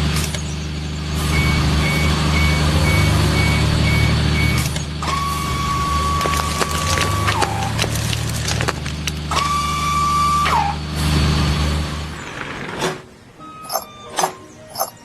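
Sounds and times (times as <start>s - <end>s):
truck engine running: 0.0s - 12.2s
reversing alarm beeping: 1.2s - 6.4s, 13.4s - 15.0s
steady high-pitched tone: 13.6s - 15.0s.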